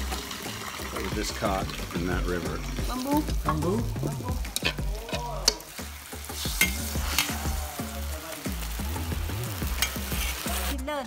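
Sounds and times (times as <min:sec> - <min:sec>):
food frying in a wok: 0:00.0 - 0:10.8
metal ladle scraping pan: 0:04.4 - 0:05.8, 0:06.4 - 0:07.5, 0:09.7 - 0:10.6.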